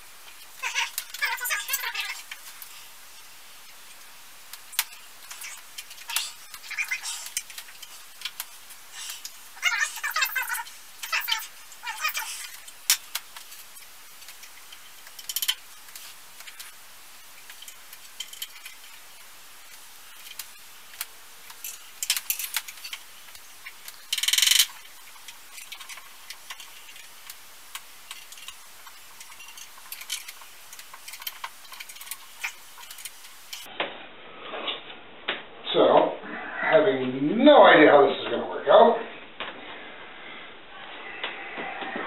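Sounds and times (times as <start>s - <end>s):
metal parts clicking and tapping: 10.1s - 16.8s, 17.4s - 19.0s, 19.7s - 33.6s.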